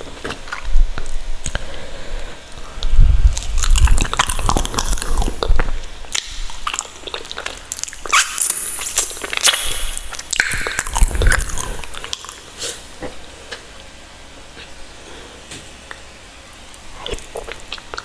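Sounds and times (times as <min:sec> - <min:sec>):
person chewing food: 0:02.6 - 0:13.9, 0:16.7 - 0:18.0.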